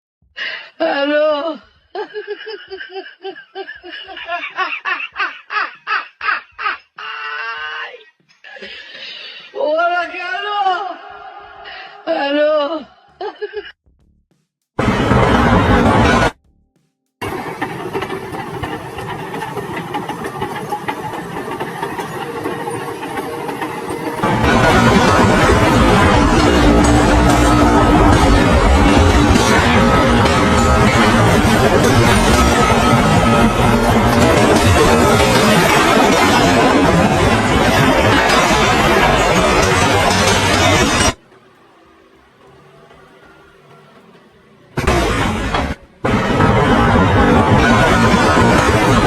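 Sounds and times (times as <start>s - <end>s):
person laughing: 0.8s - 7.6s, 12.6s - 13.8s
engine running: 17.2s - 49.0s.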